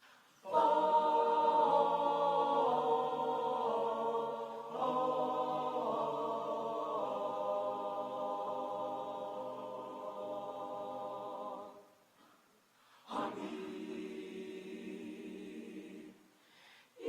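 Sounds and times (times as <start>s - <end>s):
choral church music: 0.0s - 17.0s.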